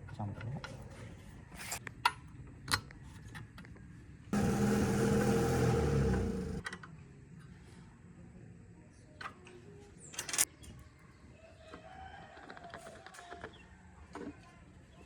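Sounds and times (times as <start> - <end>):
motor-driven machine running: 4.4 - 6.6.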